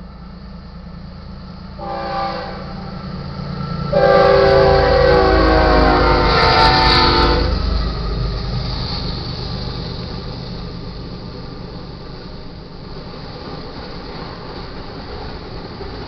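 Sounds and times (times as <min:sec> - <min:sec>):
freight cars rumbling past: 0:00.0 - 0:16.0
locomotive air horn: 0:01.8 - 0:02.9, 0:03.9 - 0:07.6.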